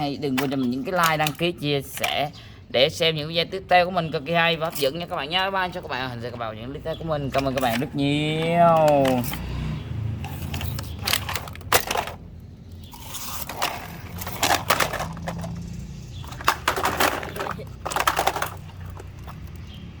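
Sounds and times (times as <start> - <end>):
plastic objects clicking and scraping: 0.0 - 2.4, 6.3 - 20.0.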